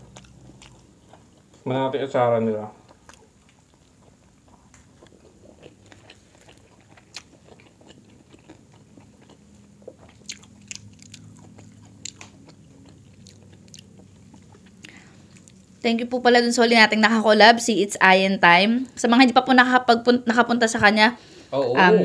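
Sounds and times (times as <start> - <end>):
people chewing and biting food: 0.0 - 1.7, 2.7 - 15.9
wet clicks and lip smacks: 10.1 - 15.6.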